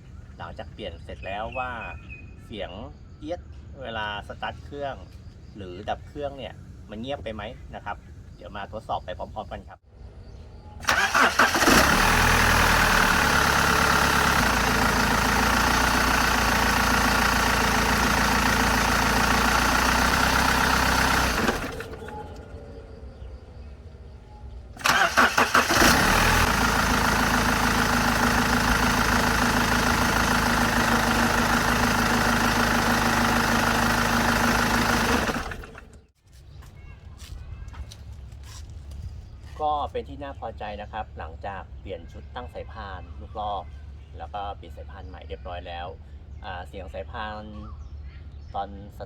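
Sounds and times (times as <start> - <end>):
diesel engine idling: 10.6 - 36.1
engine cranking: 10.8 - 36.1.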